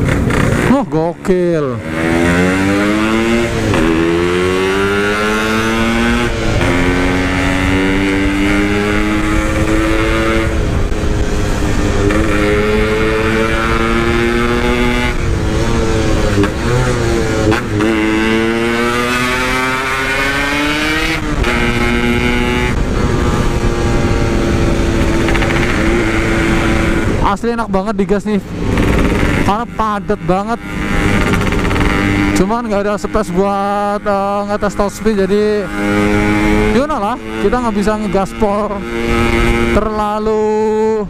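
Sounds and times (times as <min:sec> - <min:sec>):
two-stroke motorcycle engine revving: 0:00.0 - 0:41.0.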